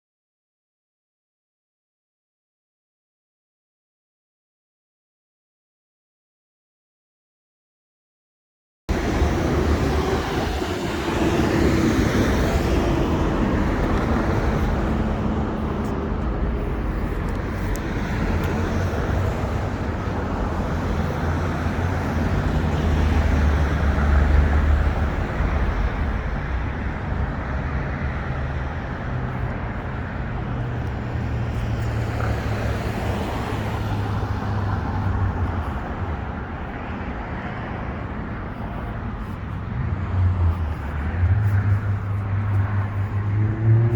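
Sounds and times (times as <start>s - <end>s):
street traffic rumble: 8.9s - 43.9s.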